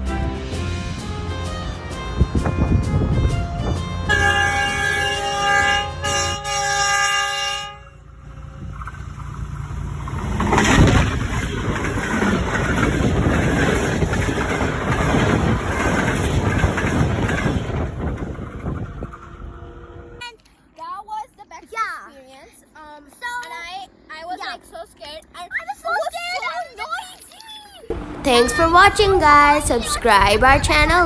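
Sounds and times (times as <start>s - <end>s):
train horn chord: 0.0s - 8.5s, 18.1s - 20.2s
passing train rumble and rattle: 0.0s - 20.2s, 27.9s - 31.0s.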